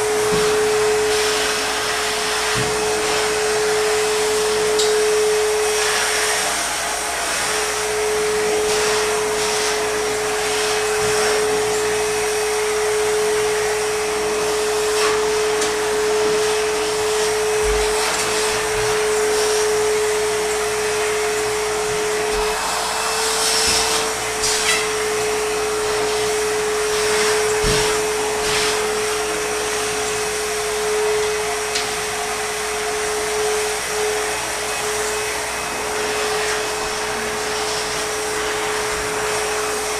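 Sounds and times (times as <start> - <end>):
backpack vacuum running: 0.0 - 39.9
vacuum wand knocking surfaces: 0.2 - 0.6, 2.5 - 2.9, 17.5 - 19.0, 27.2 - 28.7.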